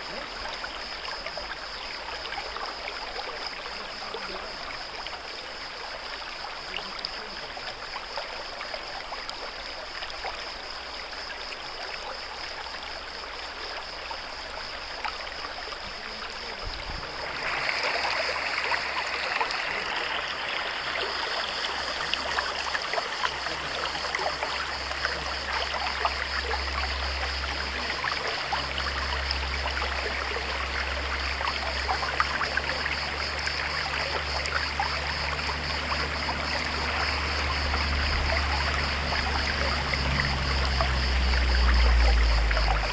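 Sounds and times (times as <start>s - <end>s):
stream running over rocks: 0.0s - 42.9s.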